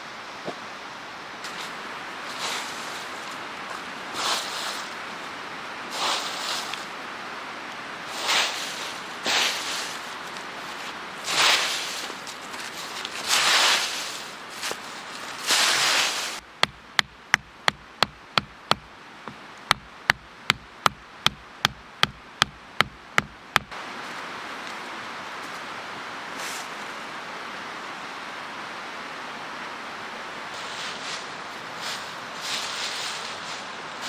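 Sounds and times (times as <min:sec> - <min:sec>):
steady rushing noise: 0:00.0 - 0:26.3
rustling: 0:01.4 - 0:07.0, 0:08.1 - 0:24.7, 0:30.6 - 0:34.0
sharp knocking: 0:16.6 - 0:23.7.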